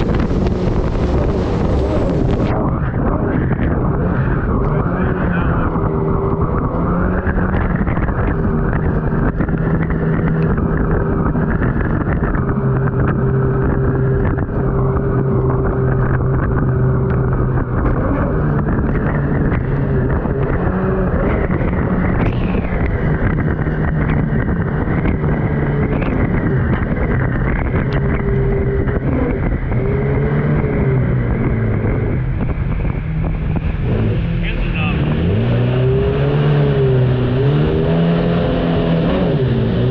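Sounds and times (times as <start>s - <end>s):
rushing water: 0.0s - 4.4s
boat engine running hard: 0.0s - 39.9s
wind on microphone: 0.0s - 39.9s.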